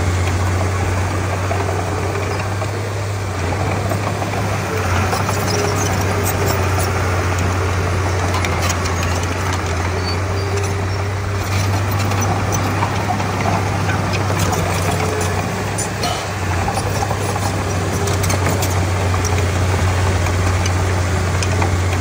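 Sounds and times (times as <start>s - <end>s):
bulldozer diesel engine droning: 0.0s - 22.0s
clicks and clanks: 8.2s - 22.0s.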